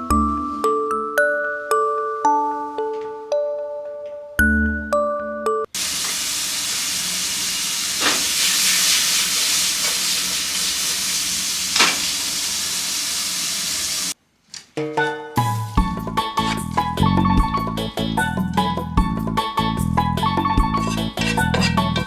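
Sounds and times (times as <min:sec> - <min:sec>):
food sizzling in frying pan: 0:05.8 - 0:14.2.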